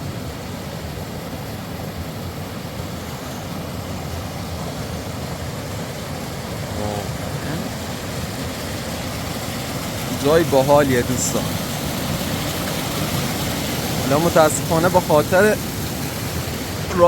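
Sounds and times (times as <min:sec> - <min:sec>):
short voice: 0:06.7 - 0:07.7.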